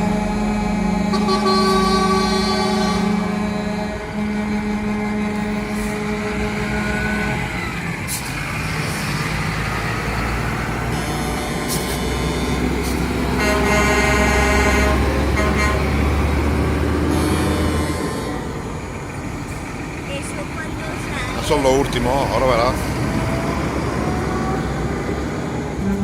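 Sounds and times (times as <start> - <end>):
truck horns sounding: 0.0 - 19.5, 20.1 - 26.0
heavy truck engines rumbling: 0.0 - 26.0.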